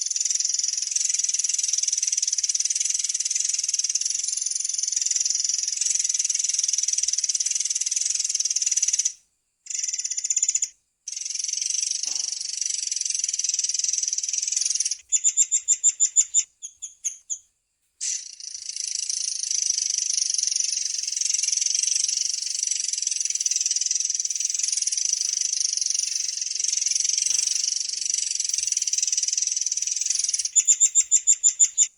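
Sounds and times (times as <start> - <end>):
songbird rolling trill: 18.4 - 31.9.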